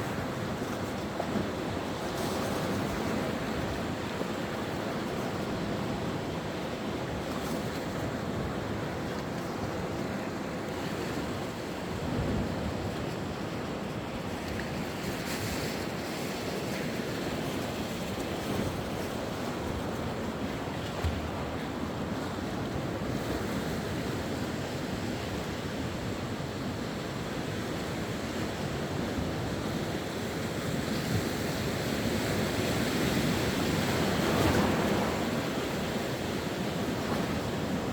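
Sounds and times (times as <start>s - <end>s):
sea waves washing ashore: 0.0s - 37.9s.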